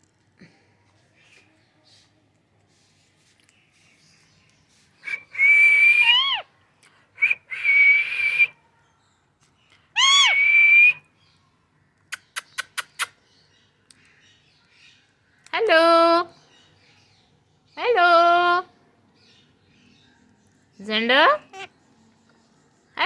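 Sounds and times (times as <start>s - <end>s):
quick sharp clicks: 12.1s - 13.2s.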